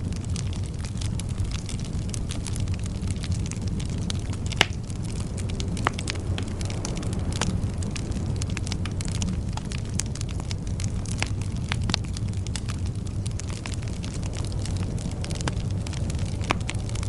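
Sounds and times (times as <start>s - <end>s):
bonfire rumbling and crackling: 0.0s - 17.0s
loud pop from fire: 3.5s - 5.0s.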